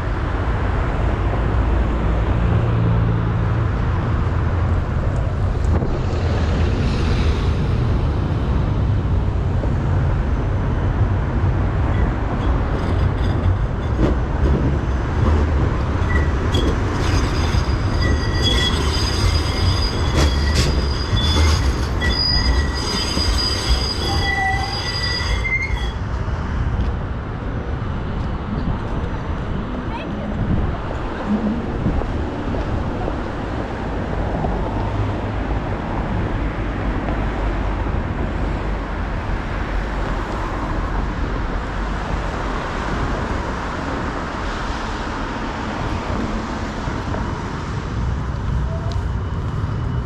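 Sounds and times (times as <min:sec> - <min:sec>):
tram rumbling on rails: 0:00.0 - 0:50.0
metal wheel squeal: 0:16.0 - 0:26.0.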